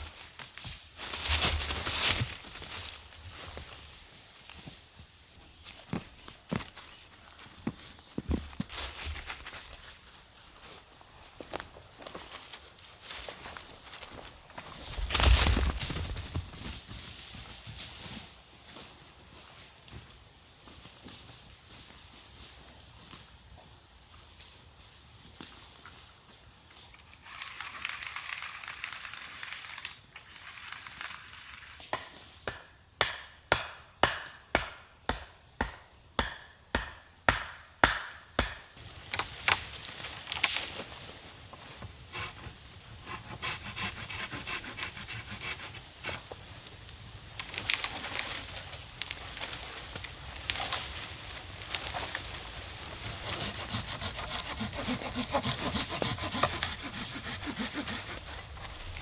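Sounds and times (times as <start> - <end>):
sharp strikes on wood: 32.5 - 38.7
hand saw cutting wood: 41.8 - 46.4, 52.9 - 59.0
rubbing on wood: 42.1 - 46.3, 53.0 - 59.0.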